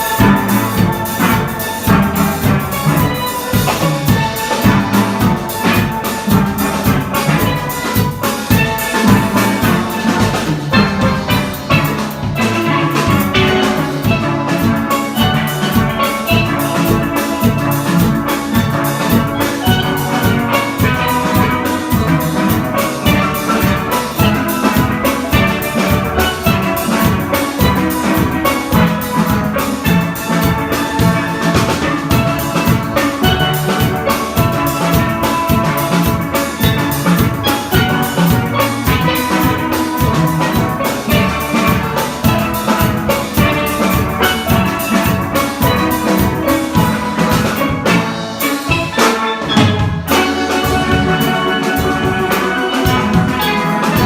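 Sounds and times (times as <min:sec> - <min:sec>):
steady drum beat: 0:00.0 - 0:54.0
steelpan ensemble playing: 0:00.0 - 0:54.0.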